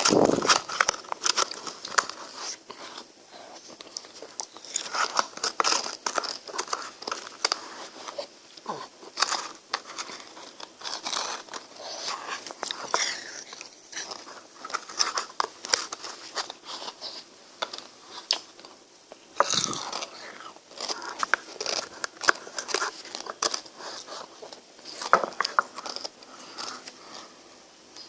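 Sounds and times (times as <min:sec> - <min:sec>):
biting and chewing ice cream: 0:19.3 - 0:26.9.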